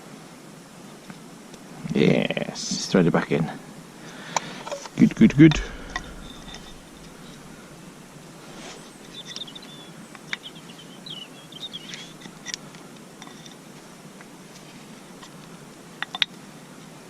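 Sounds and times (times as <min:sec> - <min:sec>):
faint bird twittering: 0:05.4 - 0:12.2.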